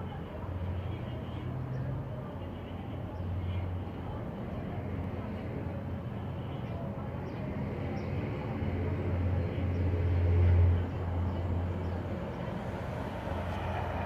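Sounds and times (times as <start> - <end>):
distant aircraft and helicopters drone: 0.0 - 14.0.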